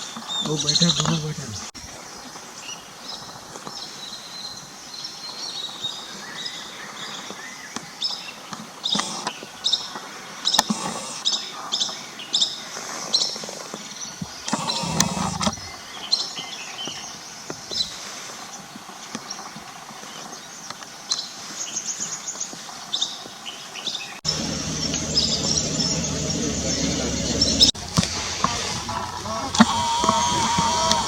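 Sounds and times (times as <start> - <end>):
birds chirping: 0.0 - 31.0
steady low noise: 24.2 - 31.0.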